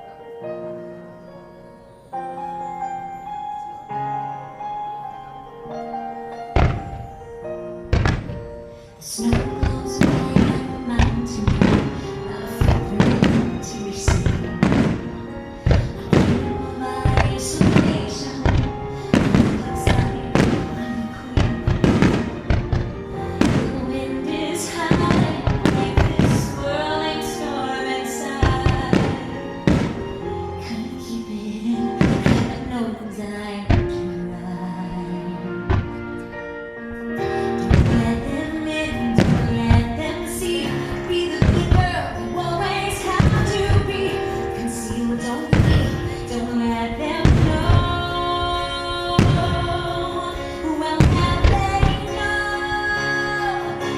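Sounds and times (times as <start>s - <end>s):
gentle bell-like music: 0.0s - 53.9s
firework shells bursting: 7.8s - 30.6s, 31.8s - 32.8s, 37.6s - 53.1s.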